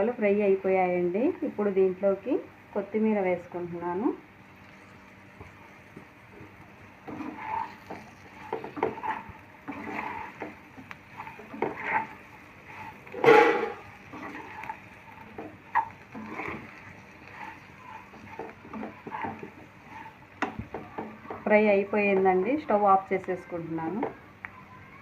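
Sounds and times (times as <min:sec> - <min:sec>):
spatula scraping potatoes in pan: 0:04.5 - 0:22.4.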